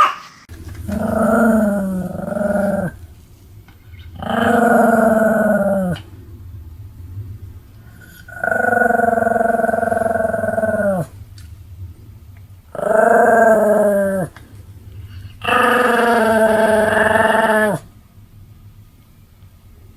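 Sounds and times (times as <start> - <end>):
dog howling: 0.8 - 3.0, 4.2 - 6.0, 8.3 - 11.2, 12.8 - 14.4, 15.4 - 17.9.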